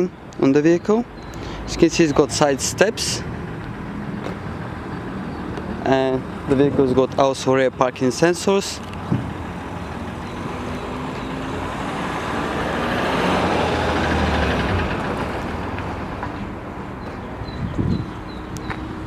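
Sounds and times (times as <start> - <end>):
vehicle driving past: 9.3 - 17.6.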